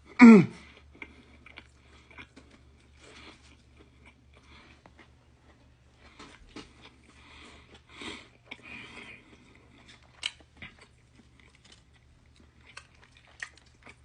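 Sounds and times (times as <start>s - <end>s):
person chewing sandwich: 0.0s - 14.0s.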